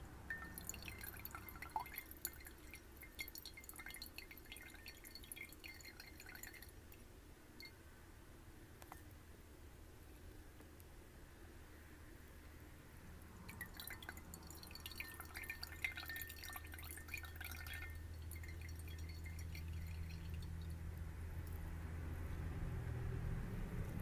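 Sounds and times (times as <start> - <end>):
steady low hum: 0.0 - 24.0
water dripping into glass: 0.2 - 7.8, 13.5 - 21.6.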